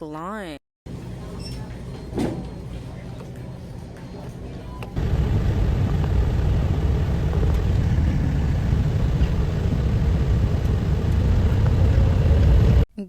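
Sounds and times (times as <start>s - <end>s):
vehicle rumble: 4.8s - 12.8s.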